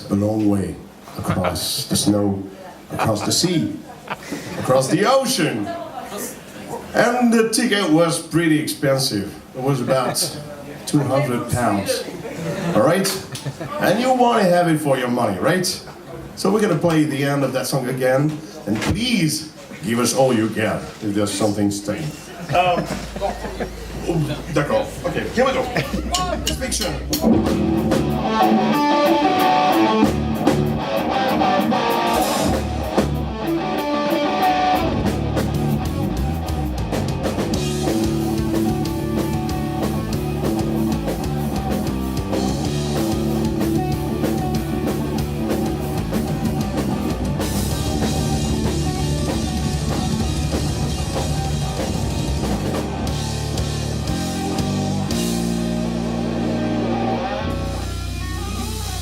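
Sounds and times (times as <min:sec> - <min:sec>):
drum kit: 0:22.5 - 0:59.0
bass guitar: 0:22.6 - 0:59.0
electric guitar: 0:27.0 - 0:59.0.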